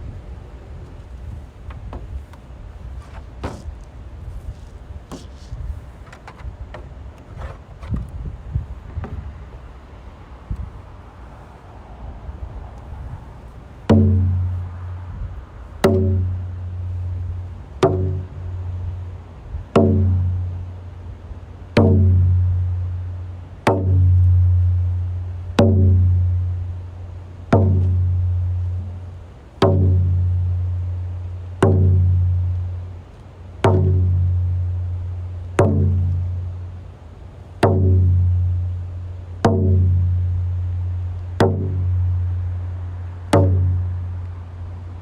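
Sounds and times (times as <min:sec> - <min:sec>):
hand drum booming strokes: 0:12.9 - 0:45.0.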